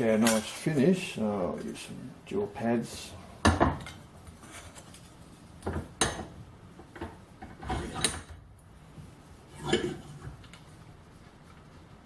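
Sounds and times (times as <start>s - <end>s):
metal parts clunking and scraping: 7.0s - 8.3s.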